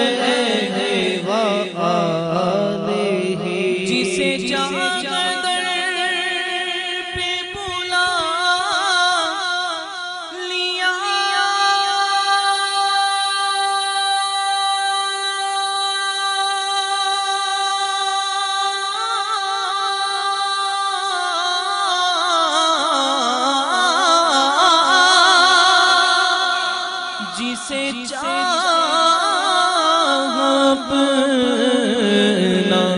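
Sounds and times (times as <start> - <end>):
high voice singing wordlessly: 0.0 - 6.1, 27.2 - 32.9.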